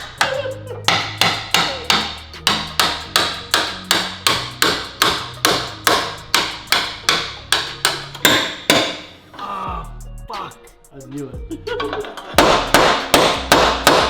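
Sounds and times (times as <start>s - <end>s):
hammer striking chisel on metal: 0.0s - 9.1s, 12.4s - 14.0s.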